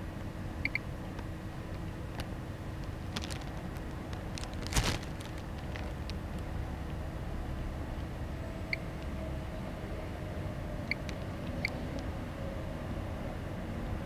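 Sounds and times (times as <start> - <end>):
low background hum: 0.0 - 14.0
radiation meter double beep: 0.6 - 0.8.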